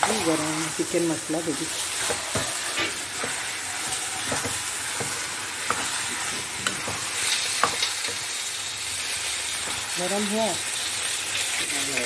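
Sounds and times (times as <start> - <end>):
chicken sizzling in a pan: 0.0 - 12.0
spoon scraping and knocking pan: 1.9 - 8.4.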